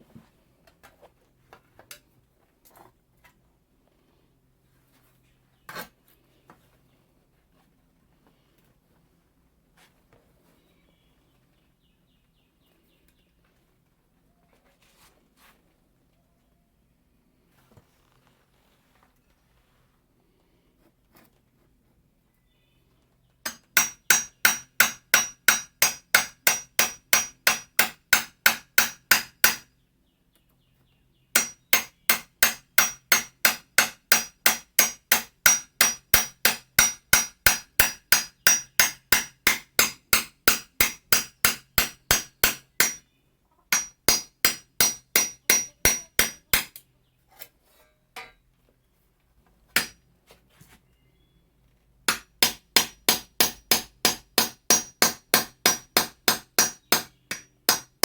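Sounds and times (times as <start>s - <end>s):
hammer ringing on steel blade: 31.4s - 43.0s, 43.8s - 46.7s.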